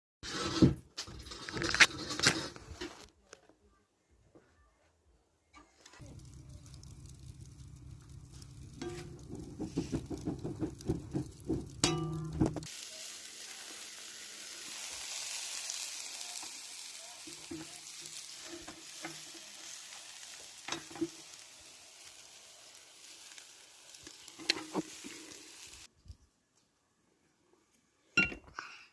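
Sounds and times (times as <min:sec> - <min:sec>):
food sizzling: 0:05.8 - 0:25.9.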